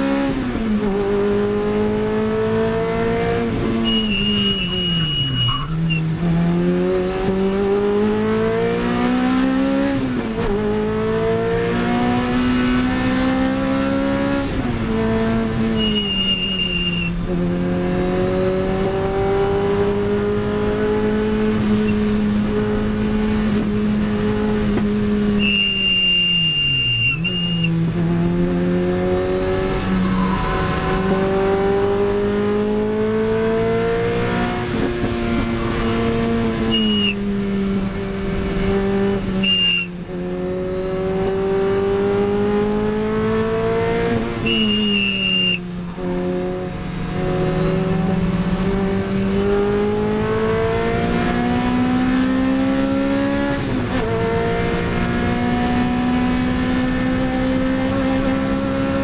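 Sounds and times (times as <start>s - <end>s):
car engine revving: 0.0s - 59.0s
tyres squealing: 3.8s - 6.0s, 15.8s - 17.1s, 36.7s - 37.2s.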